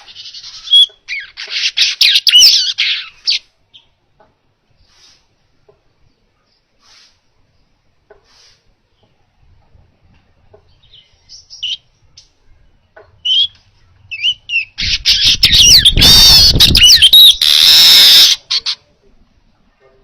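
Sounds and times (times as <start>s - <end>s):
buzzy wheezing bird song: 0.0s - 3.5s, 4.7s - 5.4s, 6.0s - 9.0s, 13.3s - 18.8s
bird chirps: 0.0s - 4.0s, 10.6s - 18.9s.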